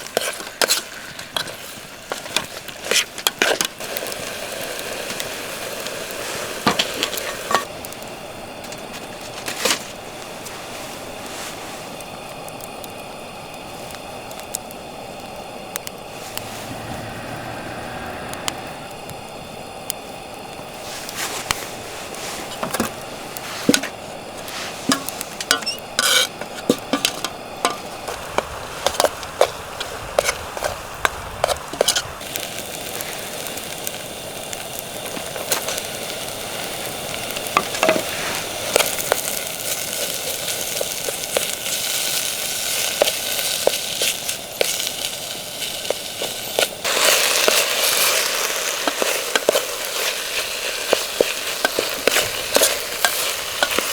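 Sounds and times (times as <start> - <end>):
utensil scraping against pan: 0.0 - 3.8, 20.9 - 32.2, 46.2 - 53.9
food sizzling in a frying pan: 0.0 - 53.9.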